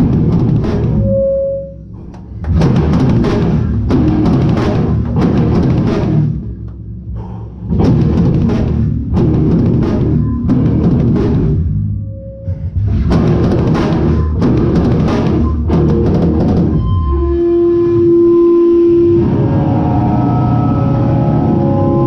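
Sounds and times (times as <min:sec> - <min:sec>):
drums: 0:00.0 - 0:01.3, 0:02.0 - 0:22.0
hardcore band playing live: 0:07.8 - 0:11.6.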